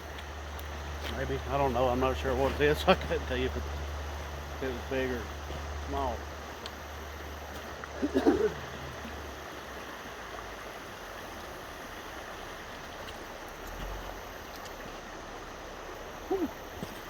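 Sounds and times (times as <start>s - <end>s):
river water rushing: 0.0s - 17.0s
short voice-like call: 16.3s - 16.6s.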